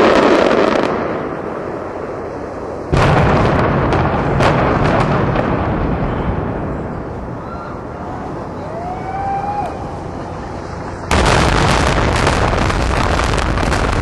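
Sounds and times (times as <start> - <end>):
deep rumble: 0.8 - 14.0
explosion booms: 2.9 - 7.0, 11.1 - 14.0
sharp cracks: 11.1 - 14.0.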